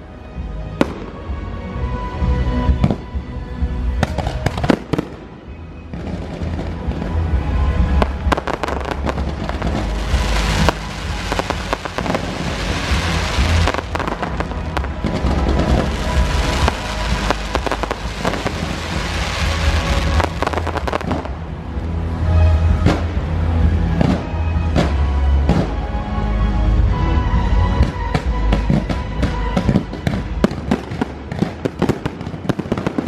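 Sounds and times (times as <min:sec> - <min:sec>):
loud music: 0:00.0 - 0:33.0
fireworks bursting and crackling: 0:04.0 - 0:21.9, 0:28.2 - 0:33.0.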